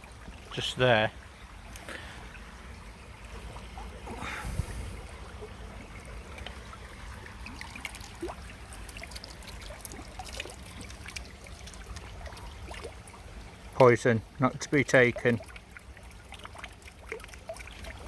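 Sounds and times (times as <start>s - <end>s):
stream trickling: 0.0s - 18.0s
water drips and clicks: 6.0s - 6.8s, 7.4s - 18.0s.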